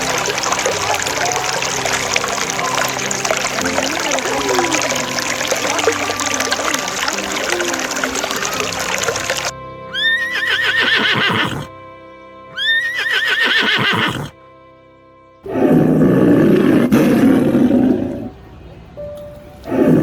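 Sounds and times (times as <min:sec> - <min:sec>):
background music: 0:00.0 - 0:20.0
horse whinnying: 0:09.9 - 0:11.7, 0:12.6 - 0:14.4, 0:15.5 - 0:18.3.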